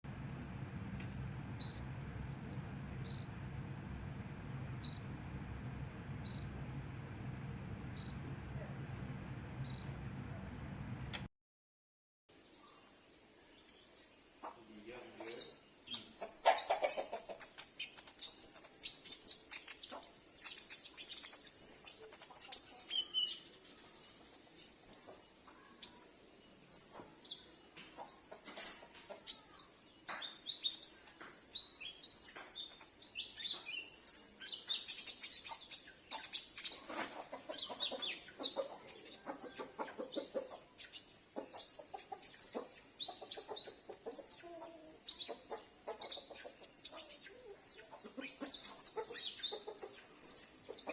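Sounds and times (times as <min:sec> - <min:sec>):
low clucking calls: 0:00.9 - 0:10.5, 0:14.4 - 0:17.8, 0:36.1 - 0:40.8, 0:41.4 - 0:50.0
bird chirps and trills: 0:01.1 - 0:03.5, 0:04.1 - 0:05.3, 0:06.2 - 0:10.0, 0:15.2 - 0:24.2.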